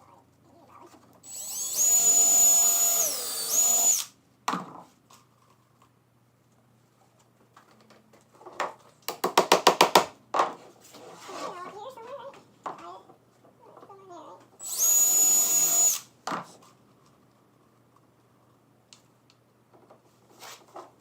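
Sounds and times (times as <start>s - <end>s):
electric drill whining in wood: 1.2s - 4.1s, 14.6s - 16.1s.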